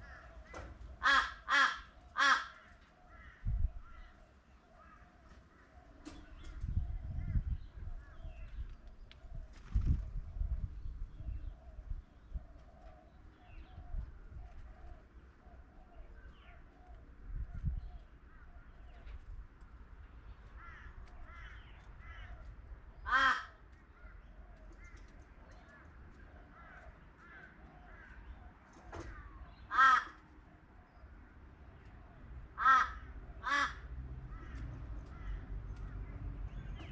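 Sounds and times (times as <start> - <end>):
crow cawing: 0.0 - 4.2, 20.5 - 24.1, 26.5 - 28.2, 29.1 - 30.2, 32.5 - 35.5
small birds chirping: 1.9 - 33.4, 34.3 - 36.9.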